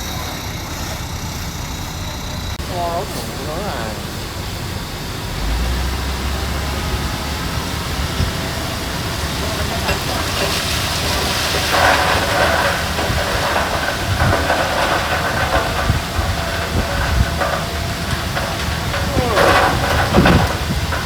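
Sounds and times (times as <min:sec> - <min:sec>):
diesel machinery running: 0:00.0 - 0:21.0
rough hissing rattling noise: 0:08.8 - 0:21.0.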